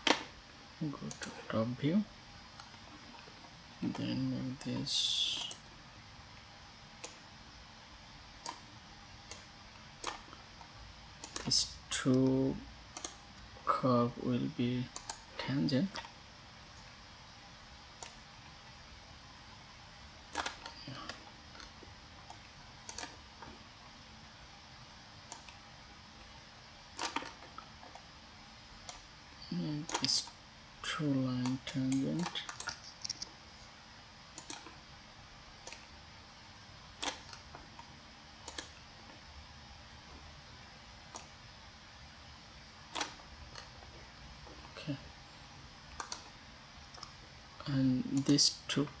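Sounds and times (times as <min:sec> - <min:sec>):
faint steady hiss: 0:00.0 - 0:49.0
computer mouse clicks: 0:01.0 - 0:01.4, 0:03.9 - 0:05.7, 0:07.0 - 0:07.3, 0:08.4 - 0:13.5, 0:14.9 - 0:16.8, 0:18.0 - 0:18.3, 0:20.3 - 0:23.6, 0:25.2 - 0:25.6, 0:26.9 - 0:28.1, 0:28.8 - 0:29.1, 0:29.8 - 0:30.4, 0:31.4 - 0:33.4, 0:34.3 - 0:34.8, 0:35.6 - 0:36.0, 0:36.9 - 0:39.2, 0:41.0 - 0:41.4, 0:42.9 - 0:43.9, 0:45.9 - 0:47.2, 0:48.1 - 0:48.5.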